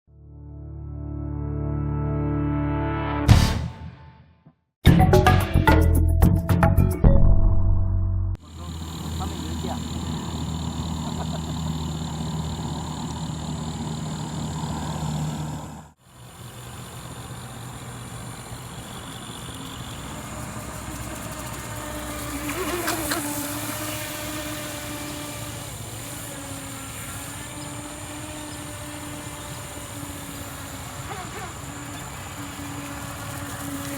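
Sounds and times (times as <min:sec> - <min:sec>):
electric motor whine: 0:08.4 - 0:33.9.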